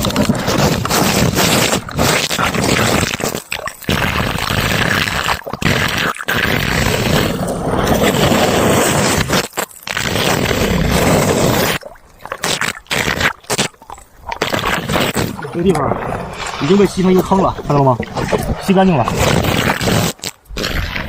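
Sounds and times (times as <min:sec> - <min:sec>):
water rushing: 0:10.2 - 0:21.0.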